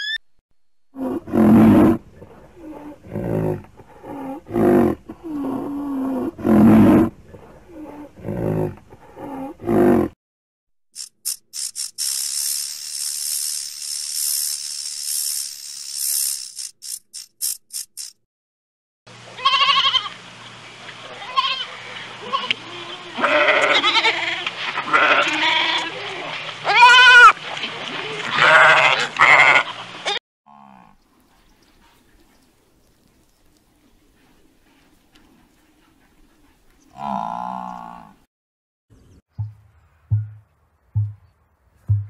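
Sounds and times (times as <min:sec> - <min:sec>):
rattlesnake rattle buzzing: 0:11.0 - 0:18.2
goats bleating: 0:19.4 - 0:20.1, 0:21.2 - 0:27.4, 0:28.2 - 0:30.2.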